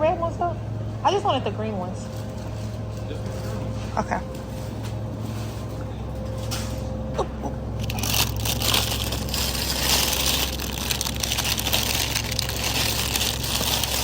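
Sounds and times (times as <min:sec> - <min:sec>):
steady low hum: 0:00.0 - 0:14.0
plastic packaging crinkling: 0:07.8 - 0:14.0.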